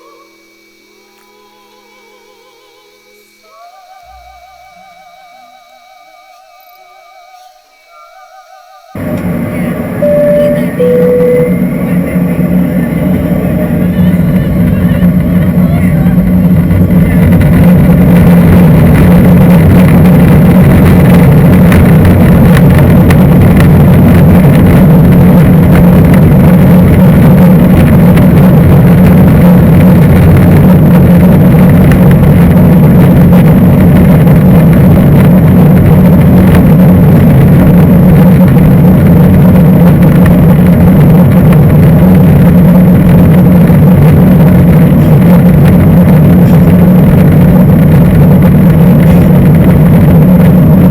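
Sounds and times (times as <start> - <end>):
jet engines roaring in cabin: 9.0 - 50.9.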